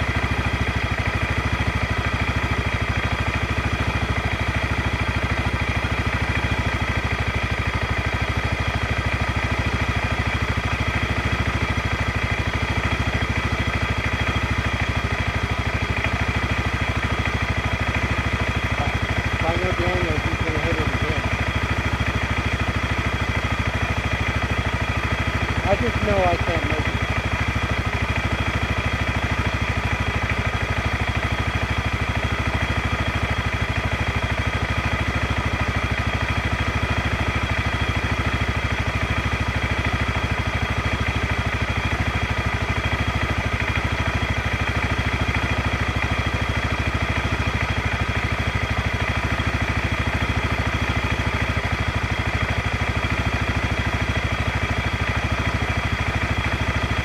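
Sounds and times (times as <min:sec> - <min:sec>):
atv engine idling: 0:00.0 - 0:57.0.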